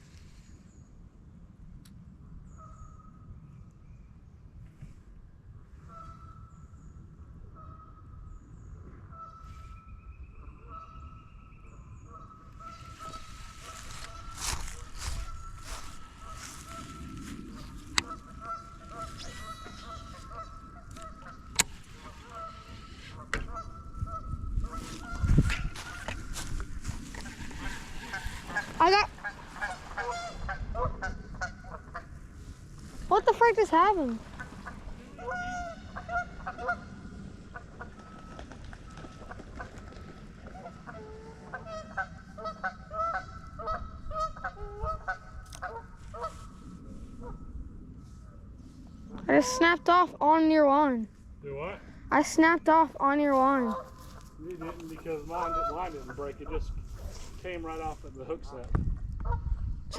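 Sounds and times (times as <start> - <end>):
geese honking: 12.0 - 46.6, 49.2 - 50.0, 52.1 - 57.3.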